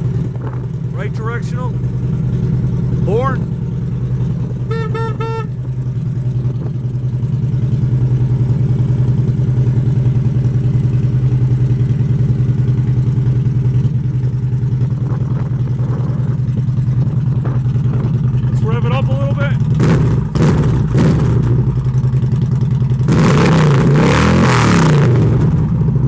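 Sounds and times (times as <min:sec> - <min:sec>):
motorcycle engine idling: 0:00.0 - 0:23.1
motorcycle horn: 0:04.6 - 0:05.8.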